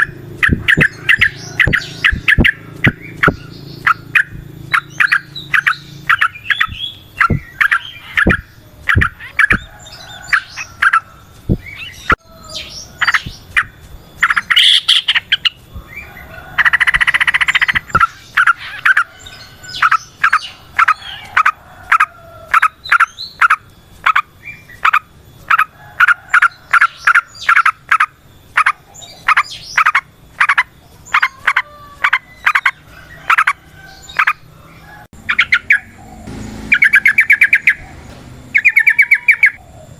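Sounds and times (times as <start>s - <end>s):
bird chirping rapidly: 0.0s - 39.9s
harsh rasping bird chatter: 0.0s - 39.9s.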